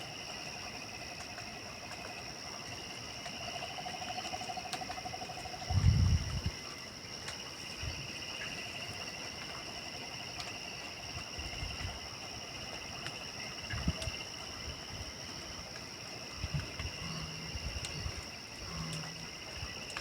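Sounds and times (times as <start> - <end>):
crickets trilling: 0.0 - 20.0
faint clicks: 18.7 - 20.0.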